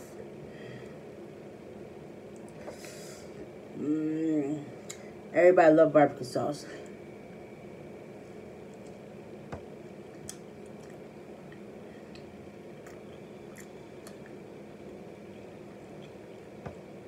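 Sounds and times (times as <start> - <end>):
low room hum: 0.0 - 17.0
faint wet clicks and smacks: 8.7 - 9.0, 9.6 - 14.4
person chewing: 10.1 - 14.4.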